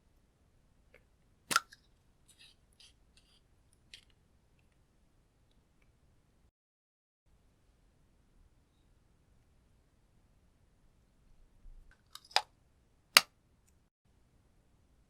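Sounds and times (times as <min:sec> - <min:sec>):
plastic container clicks: 0:01.5 - 0:01.8.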